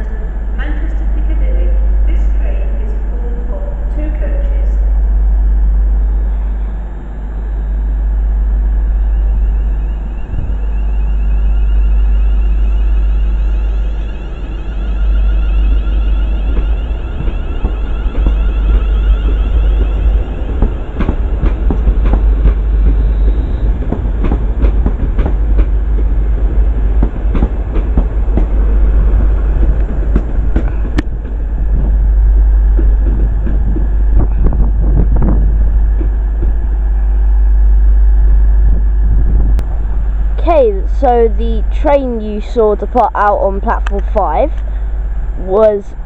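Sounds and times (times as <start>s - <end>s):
heavy train rumble: 0.0s - 46.0s
high whine: 0.0s - 46.0s
wheels clicking over rail joints: 14.9s - 32.0s.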